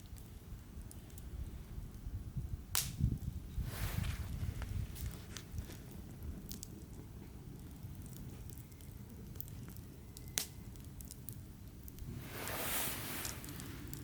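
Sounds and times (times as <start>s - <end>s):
campfire crackling: 0.0s - 14.0s
sharp pop of campfire: 2.7s - 3.3s, 10.2s - 10.6s.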